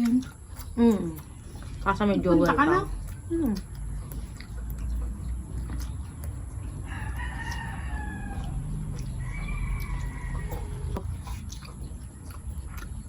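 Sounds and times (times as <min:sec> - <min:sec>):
rooster crowing: 0:06.8 - 0:11.0.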